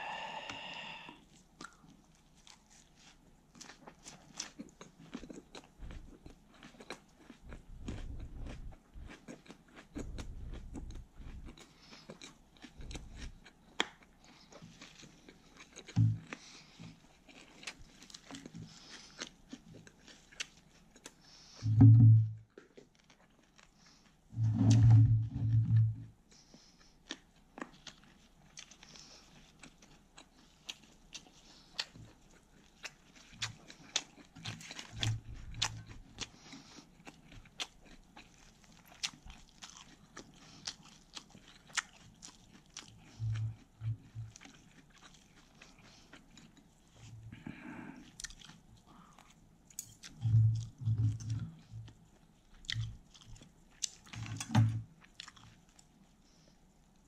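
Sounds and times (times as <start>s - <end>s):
crunchy chewing of lettuce: 0.1s - 21.7s, 22.5s - 57.0s
low thumps: 21.6s - 22.4s.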